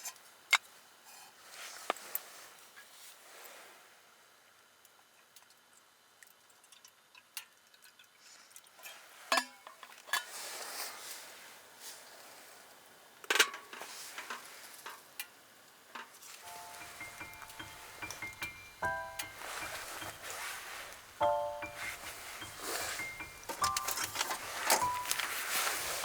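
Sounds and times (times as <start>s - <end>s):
soft hiss: 16.0s - 26.0s
metal cookware clinking: 16.8s - 26.0s.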